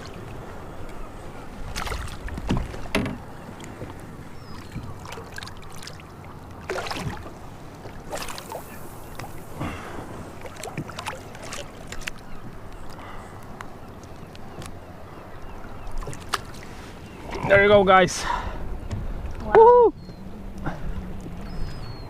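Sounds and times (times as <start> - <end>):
wind: 0.0 - 22.0
water splashing against boat hull: 1.6 - 12.3.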